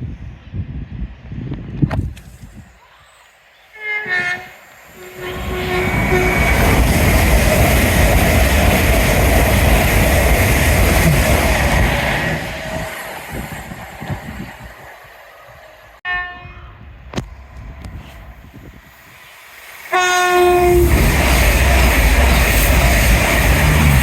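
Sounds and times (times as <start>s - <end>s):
train horn: 3.7s - 6.8s, 16.0s - 17.0s, 19.9s - 22.3s
train wheels rumbling on rail: 3.8s - 16.0s, 16.8s - 24.0s.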